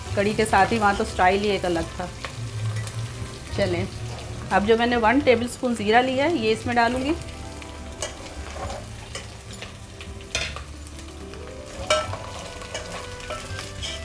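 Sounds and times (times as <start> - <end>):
spices sizzling in hot oil: 0.0 - 14.0
ladle scraping and clinking pot: 8.0 - 9.7, 11.8 - 14.0.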